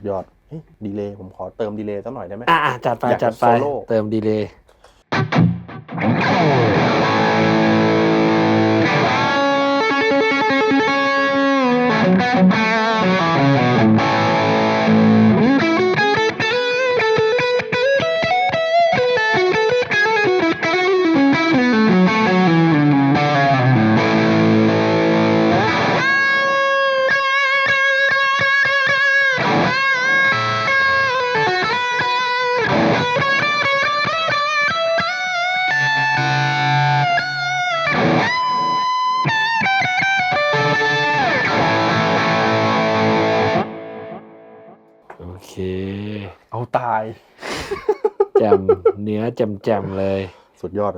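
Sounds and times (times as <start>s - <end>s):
distorted electric guitar lead: 5.2s - 19.7s, 20.5s - 44.8s.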